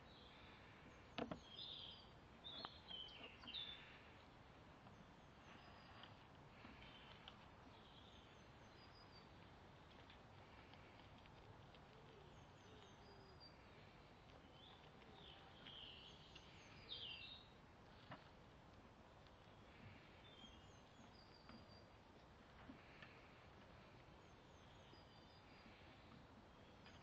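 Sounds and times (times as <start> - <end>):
faint birdsong chirps: 0.0 - 27.0.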